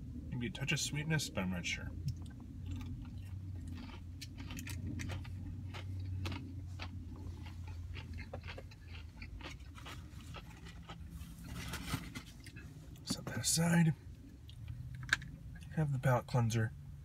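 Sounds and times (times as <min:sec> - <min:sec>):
steady low hum: 0:00.0 - 0:17.0
person chewing food: 0:02.0 - 0:11.8.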